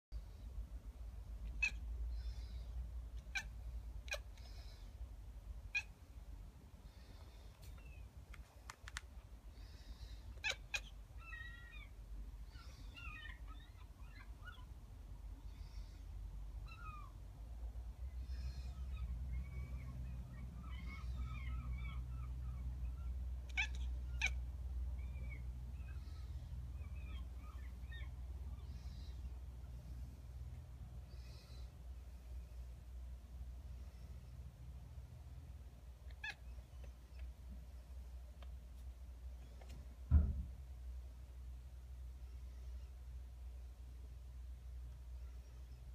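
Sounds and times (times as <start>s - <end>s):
kitten chirping: 1.4s - 4.8s, 5.7s - 6.1s, 9.7s - 14.8s, 18.1s - 29.9s, 36.0s - 37.9s
sharp clicks: 8.3s - 9.2s.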